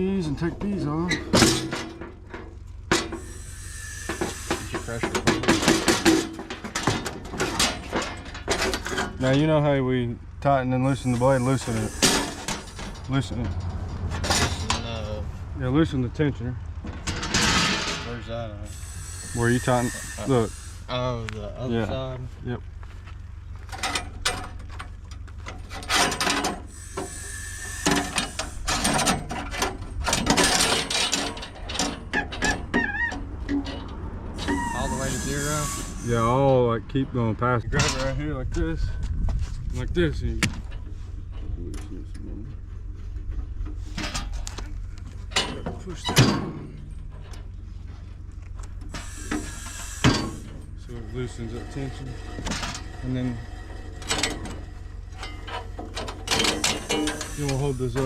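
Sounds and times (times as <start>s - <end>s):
metal parts scraping and knocking: 0.5s - 9.5s, 11.0s - 14.9s, 16.9s - 20.7s, 23.7s - 36.2s, 43.6s - 47.5s, 48.8s - 58.0s.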